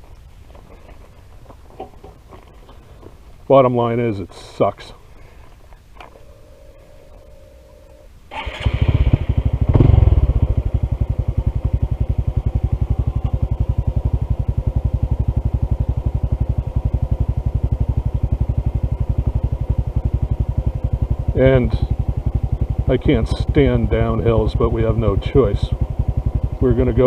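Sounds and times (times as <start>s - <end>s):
motorcycle engine starting and idling: 5.9s - 27.0s.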